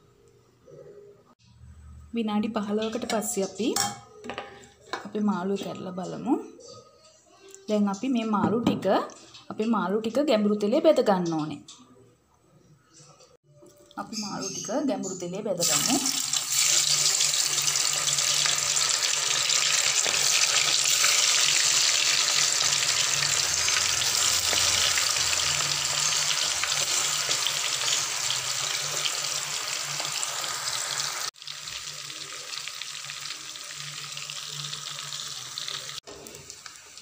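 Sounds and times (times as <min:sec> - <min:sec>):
fish sizzling in hot oil: 0:15.6 - 0:37.0.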